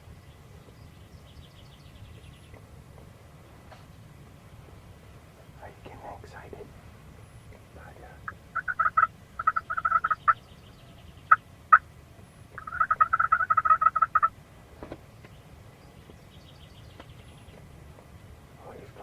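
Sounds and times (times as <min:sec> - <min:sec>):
turkey calling: 0:07.5 - 0:10.6, 0:11.2 - 0:11.9, 0:12.5 - 0:14.4.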